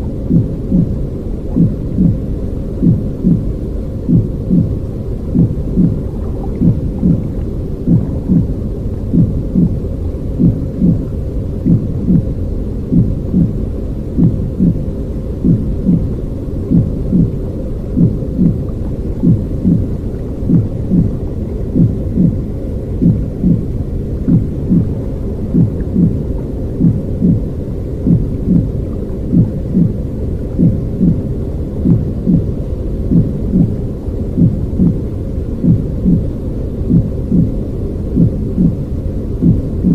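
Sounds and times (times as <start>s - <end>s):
soft heartbeat thumps: 0.0s - 12.3s, 12.9s - 33.8s, 34.4s - 35.0s, 35.6s - 36.3s, 36.9s - 39.9s
muffled low rumbling: 0.0s - 39.9s.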